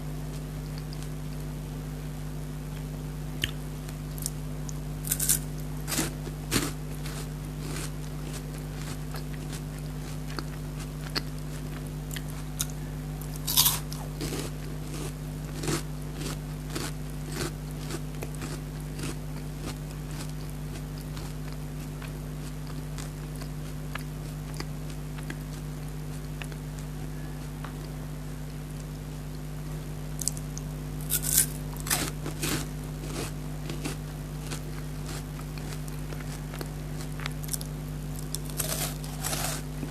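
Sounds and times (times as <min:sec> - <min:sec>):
steady low hum: 0:00.0 - 0:39.9
soft chewing: 0:00.6 - 0:01.2, 0:02.8 - 0:28.0, 0:30.2 - 0:39.9
crunching wafer bar: 0:05.0 - 0:09.7, 0:10.3 - 0:20.4, 0:31.0 - 0:39.9.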